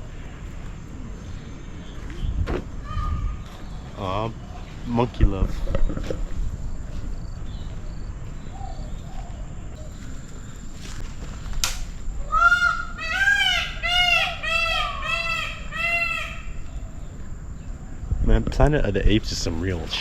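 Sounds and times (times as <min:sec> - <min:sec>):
sharp click: 0:11.6 - 0:11.9
bird honking calls: 0:12.3 - 0:17.0.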